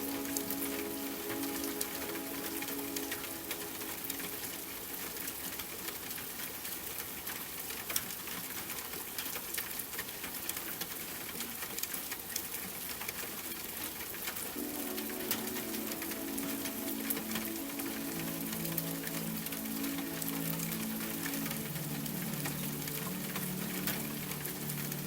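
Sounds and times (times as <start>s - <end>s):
soft sustained music tones: 0.0s - 6.2s, 14.5s - 25.0s
rain drops tapping: 0.0s - 25.0s.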